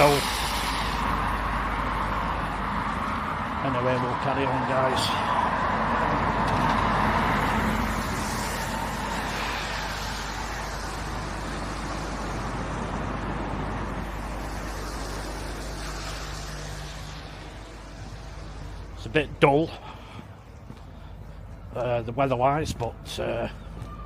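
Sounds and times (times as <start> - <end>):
vehicle passing close: 0.0 - 20.7
low engine hum: 0.0 - 24.0.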